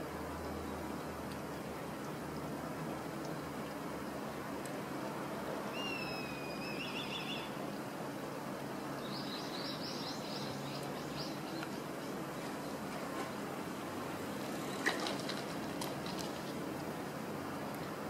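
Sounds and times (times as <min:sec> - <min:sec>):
steady background noise: 0:00.0 - 0:18.0
small bird whistling and trilling: 0:05.8 - 0:07.5.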